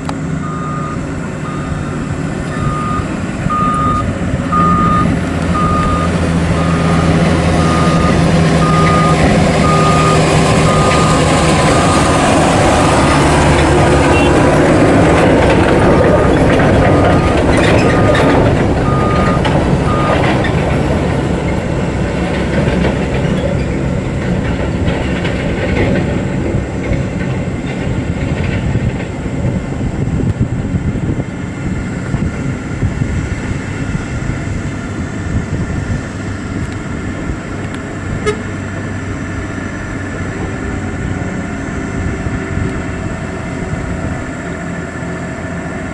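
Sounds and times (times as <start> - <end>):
diesel engine running: 0.0 - 45.9
truck reversing alarm beeping: 0.4 - 21.2.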